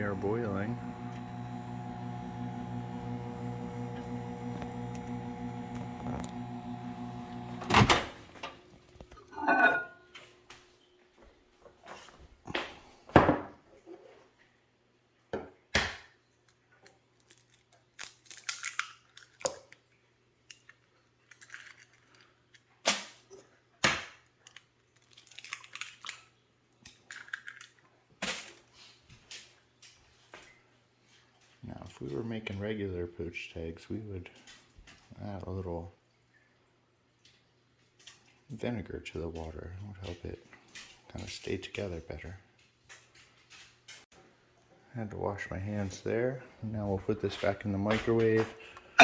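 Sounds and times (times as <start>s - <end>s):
microwave oven humming: 0.0s - 8.8s
microwave click: 0.1s - 8.6s
eggs cracked against a bowl: 17.2s - 19.8s, 20.5s - 22.2s, 23.8s - 26.2s, 26.8s - 27.8s.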